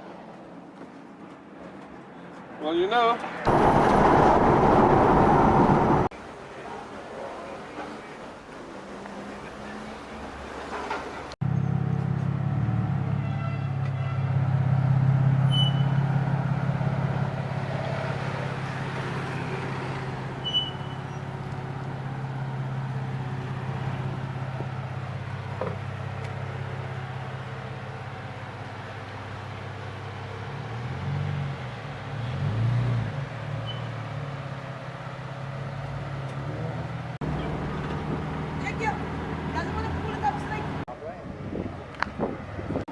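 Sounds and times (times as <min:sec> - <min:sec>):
road noise: 0:00.0 - 0:42.9
car engine: 0:03.5 - 0:06.1, 0:09.2 - 0:13.2, 0:13.8 - 0:40.9.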